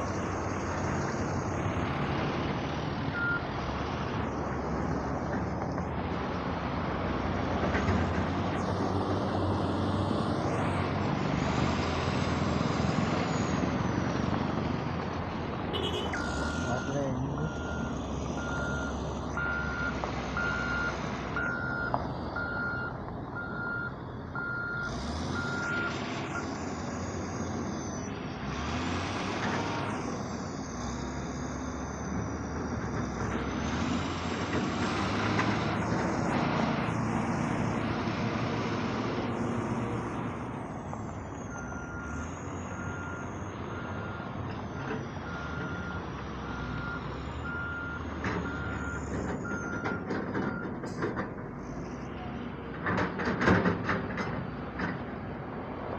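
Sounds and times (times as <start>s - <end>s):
diesel machinery engines under load: 0.0s - 55.9s
backup alarm beeping: 15.8s - 26.5s.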